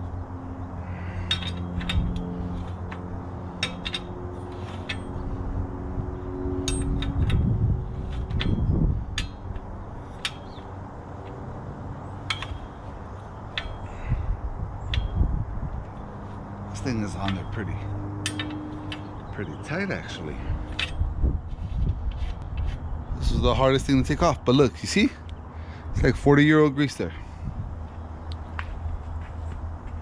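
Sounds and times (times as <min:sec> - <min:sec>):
steady low hum: 0:00.0 - 0:30.0
metal tools clinking on bicycle parts: 0:00.8 - 0:05.4, 0:06.6 - 0:10.7, 0:12.2 - 0:14.2, 0:14.8 - 0:15.3, 0:16.7 - 0:21.1.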